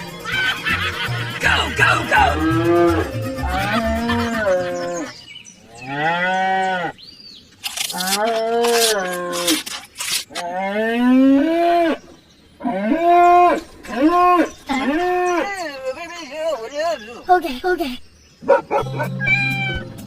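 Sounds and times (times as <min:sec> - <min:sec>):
cow mooing: 0:02.2 - 0:05.1, 0:05.8 - 0:06.9.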